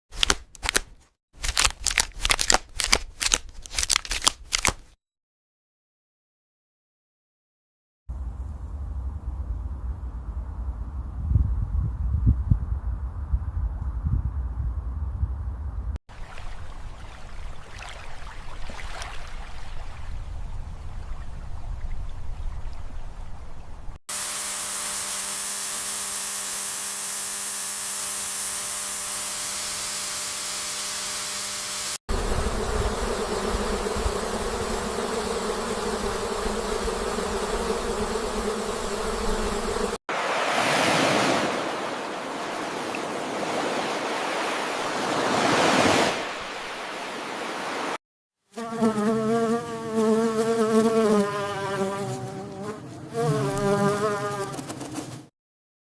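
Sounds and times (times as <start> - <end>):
insect buzzing: 24.1 - 40.0, 48.5 - 55.3.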